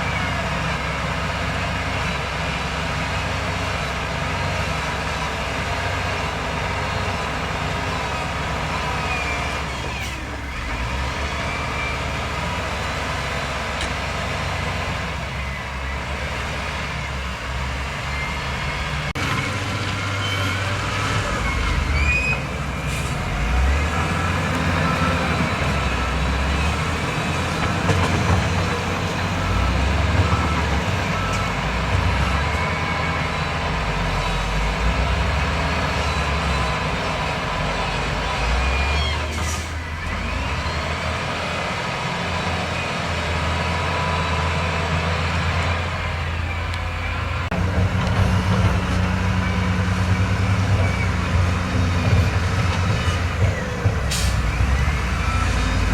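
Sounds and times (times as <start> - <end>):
heavy diesel machinery engine: 0.0 - 55.9.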